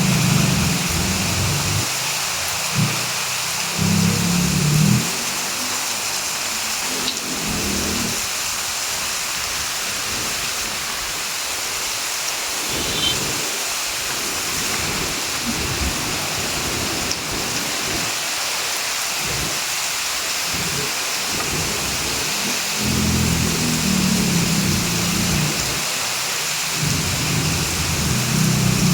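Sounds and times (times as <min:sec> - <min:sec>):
low rumbles: 0:00.0 - 0:01.9
heavy rain pouring: 0:00.0 - 0:28.9.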